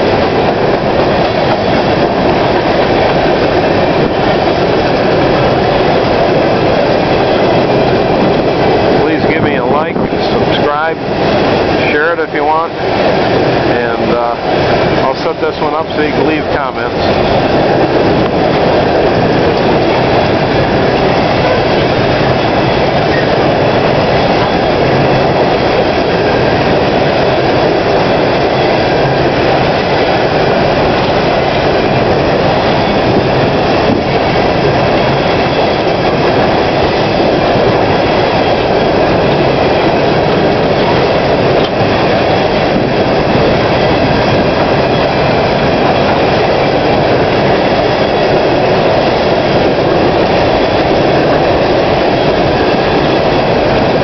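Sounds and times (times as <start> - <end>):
freight train wheels rolling: 0.0 - 54.0.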